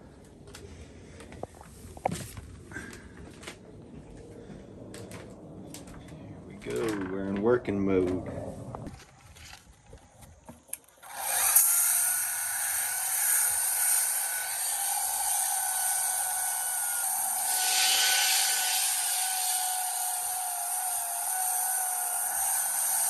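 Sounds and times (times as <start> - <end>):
power sander motor whine: 9.0 - 23.0
sandpaper hissing on wood: 12.6 - 23.0.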